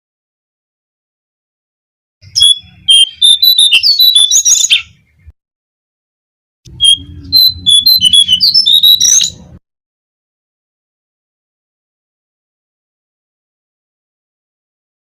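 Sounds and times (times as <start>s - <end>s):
rapid high bird chirping: 2.2s - 5.3s, 6.7s - 9.6s.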